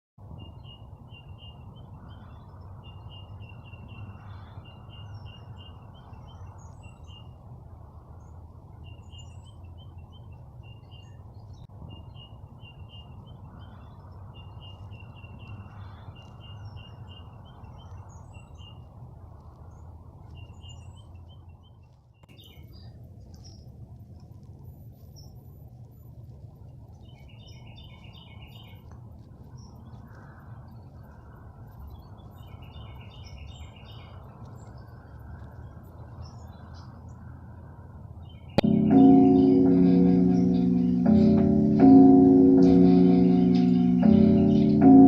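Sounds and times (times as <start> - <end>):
low rushing background noise: 38.6 - 45.0.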